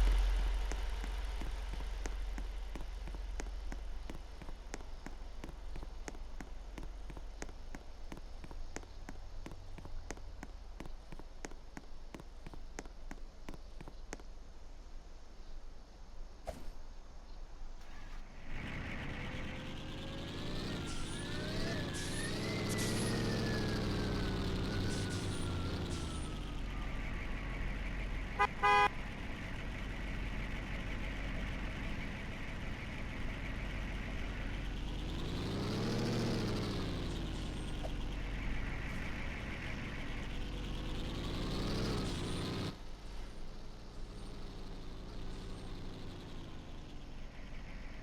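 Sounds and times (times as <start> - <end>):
truck engines revving: 0.0 - 11.2, 17.8 - 48.0
horn honk: 28.3 - 29.2.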